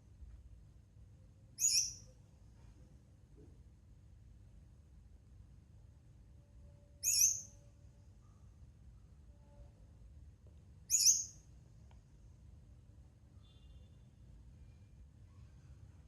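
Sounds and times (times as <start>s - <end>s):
bird high-pitched calls: 1.6s - 2.1s, 7.0s - 7.6s, 10.9s - 11.4s.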